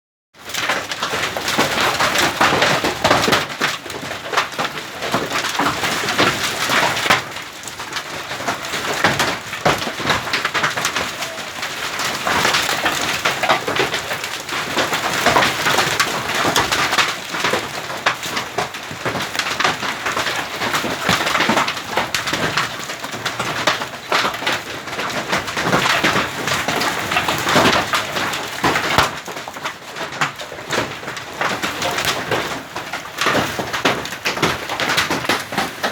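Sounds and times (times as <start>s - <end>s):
hail clattering on hard surfaces: 0.4s - 35.9s
rain falling: 0.4s - 35.9s.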